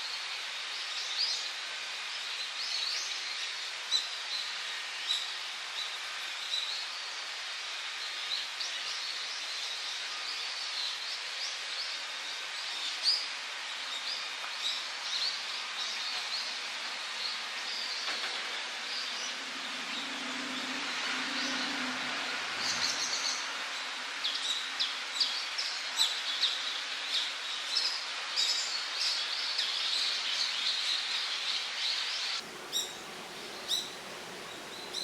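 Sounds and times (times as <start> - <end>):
steady outdoor hiss: 0.0 - 35.0
small birds chirping: 28.4 - 35.0.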